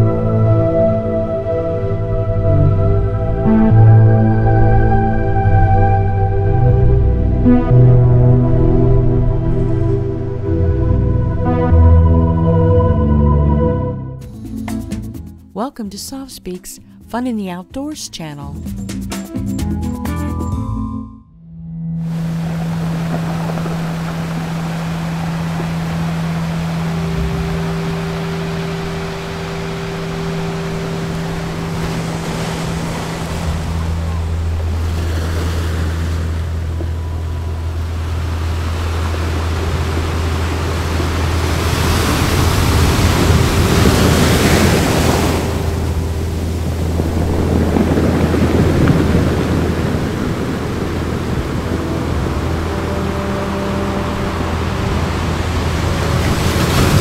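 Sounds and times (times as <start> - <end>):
ocean surf on beach: 22.1 - 57.0.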